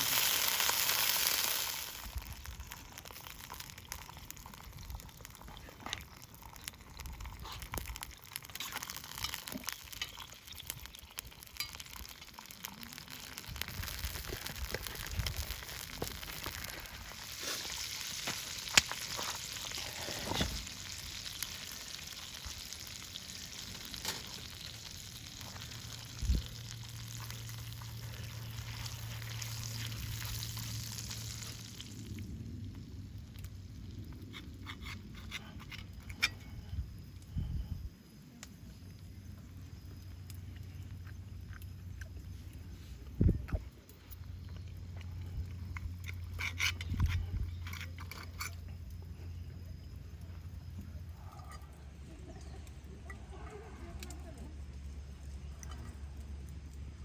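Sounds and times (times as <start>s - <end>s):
food sizzling in a pan: 0.0s - 32.4s.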